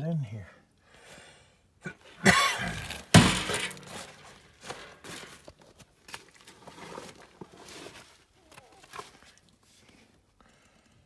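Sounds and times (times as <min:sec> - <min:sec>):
sheet metal panel clanking: 0:02.7 - 0:04.3.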